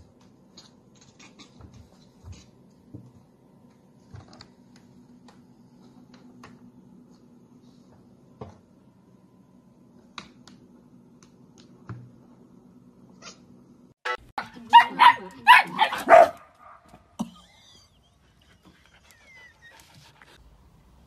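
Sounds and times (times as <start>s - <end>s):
dog barking: 14.4s - 16.8s.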